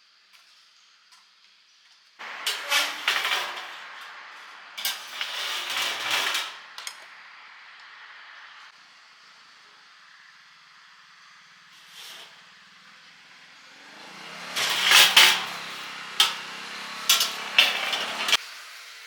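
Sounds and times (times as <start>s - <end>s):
sharp metallic clanks: 2.2s - 7.1s, 14.5s - 18.4s
engine running: 2.2s - 18.4s.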